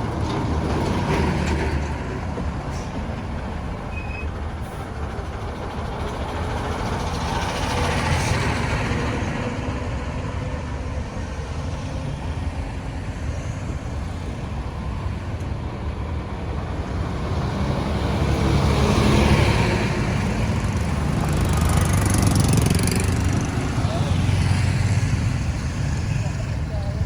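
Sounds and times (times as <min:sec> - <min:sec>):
road traffic rumble: 0:00.0 - 0:27.0
vehicle passing by: 0:16.8 - 0:27.0.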